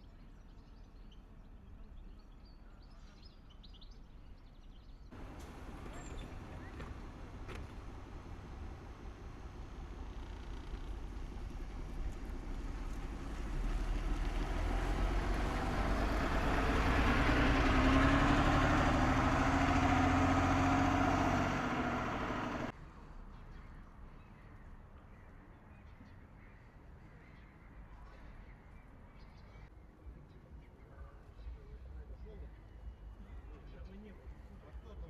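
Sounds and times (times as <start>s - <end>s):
quiet outdoor ambience: 0.0s - 35.0s
vehicle driving past: 5.1s - 22.7s.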